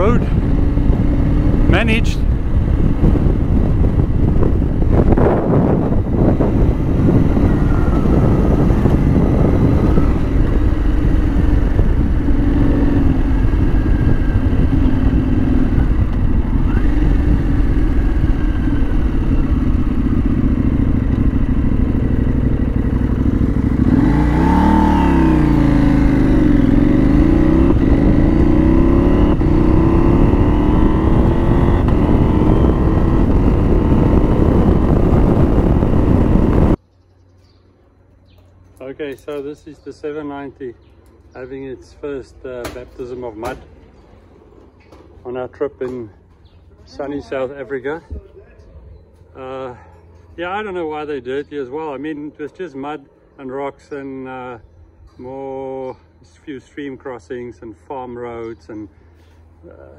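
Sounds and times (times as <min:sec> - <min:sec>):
heavy rumble: 0:00.0 - 0:36.9
motorcycle engine running: 0:00.0 - 0:51.0.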